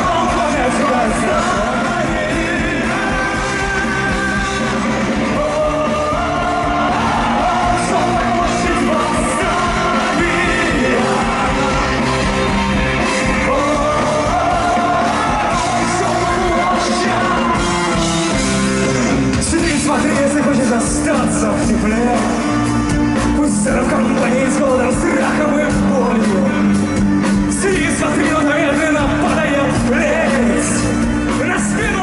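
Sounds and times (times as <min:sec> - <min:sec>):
person singing: 0:00.0 - 0:18.4
rock band playing live: 0:00.0 - 0:32.0.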